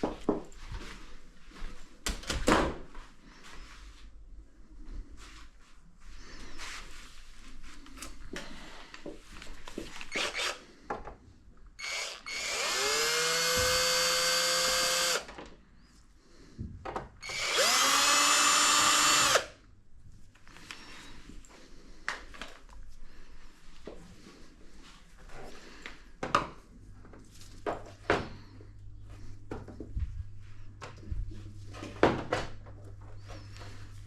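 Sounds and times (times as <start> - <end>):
cordless drill whine: 10.0 - 10.6, 11.8 - 15.3, 17.2 - 19.6.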